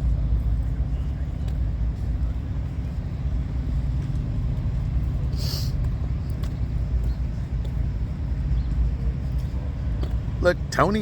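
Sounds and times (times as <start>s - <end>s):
diesel truck engine idling: 0.0s - 11.0s
brief hiss: 5.3s - 5.8s.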